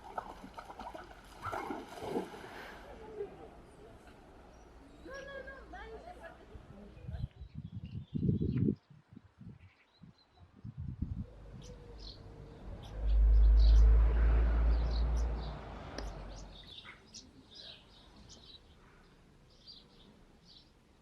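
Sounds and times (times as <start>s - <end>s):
small birds chirping: 7.0s - 14.1s, 14.7s - 21.0s
loud low rumble: 11.0s - 15.7s.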